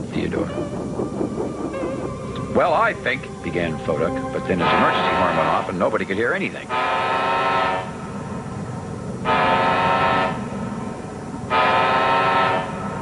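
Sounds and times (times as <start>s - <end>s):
low steady rumble: 0.0s - 13.0s
boat horn blasts: 6.7s - 8.0s, 9.2s - 10.5s, 11.5s - 13.0s.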